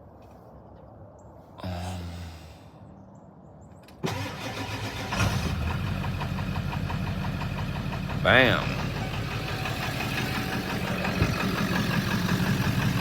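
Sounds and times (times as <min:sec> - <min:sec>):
diesel engine cranking and idling: 0:04.0 - 0:13.0.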